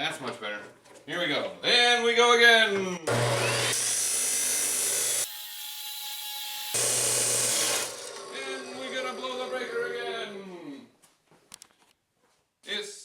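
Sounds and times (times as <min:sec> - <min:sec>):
motor hum: 0:03.0 - 0:05.2
electric saw cutting steel: 0:03.0 - 0:10.3.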